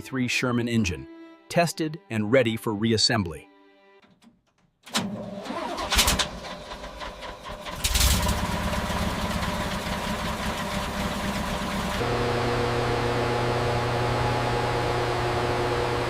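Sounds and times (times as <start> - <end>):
engine cranking and running: 4.8 - 12.4.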